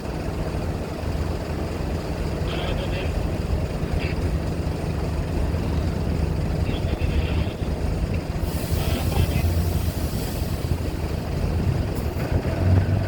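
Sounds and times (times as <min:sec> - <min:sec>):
low engine rumble: 0:00.0 - 0:13.0
hiss: 0:08.4 - 0:11.2.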